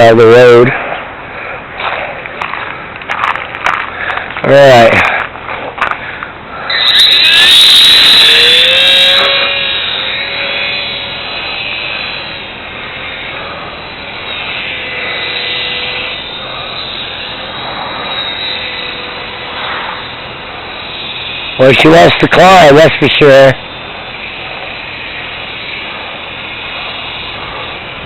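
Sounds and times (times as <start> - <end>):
model plane motor whining: 6.6 - 28.0.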